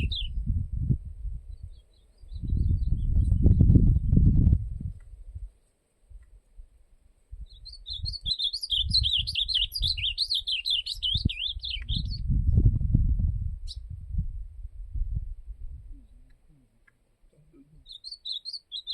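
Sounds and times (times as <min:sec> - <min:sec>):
bird warbling song: 0:00.0 - 0:00.4, 0:01.5 - 0:04.2, 0:07.4 - 0:12.3, 0:17.5 - 0:18.9
low microphone rumble: 0:00.0 - 0:10.2, 0:10.9 - 0:16.8.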